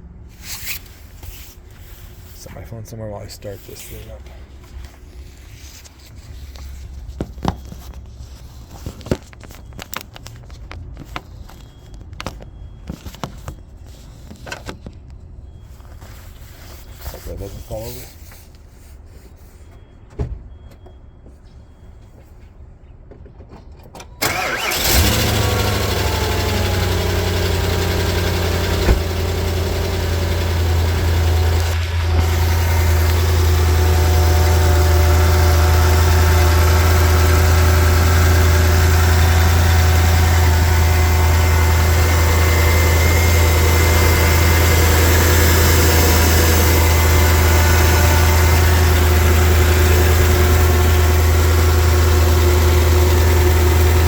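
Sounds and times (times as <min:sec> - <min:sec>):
car engine cranking: 0:24.2 - 0:54.0
car engine idling: 0:24.2 - 0:54.0.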